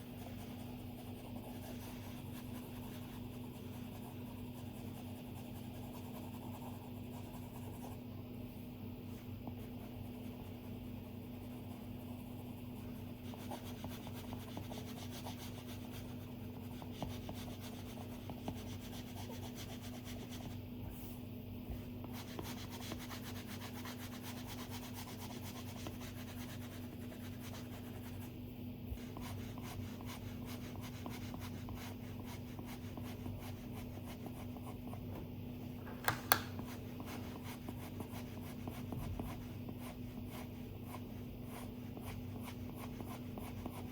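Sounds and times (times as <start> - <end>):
sharp taps: 36.0 - 36.6.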